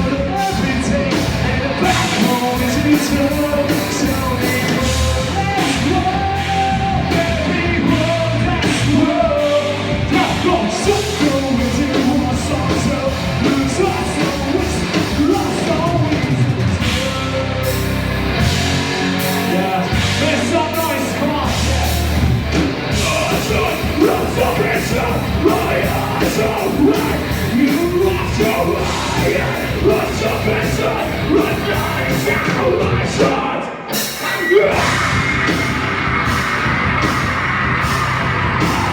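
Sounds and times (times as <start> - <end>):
distorted guitars: 0.0 - 38.9
shouted vocals: 22.9 - 38.9.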